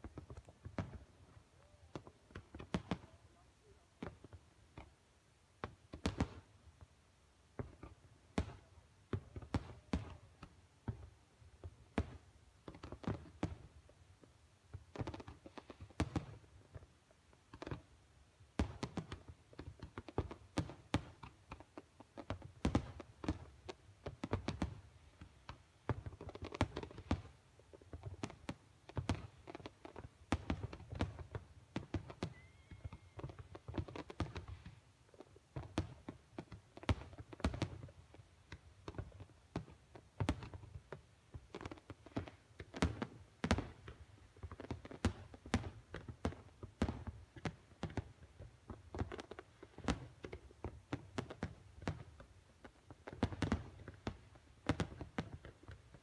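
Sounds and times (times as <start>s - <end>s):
fireworks thuds and bangs: 30.3s - 34.8s, 53.1s - 55.8s.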